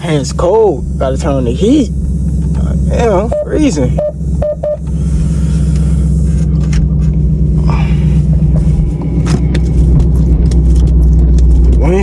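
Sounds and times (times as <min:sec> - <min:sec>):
car exhaust drone: 0:00.0 - 0:12.0.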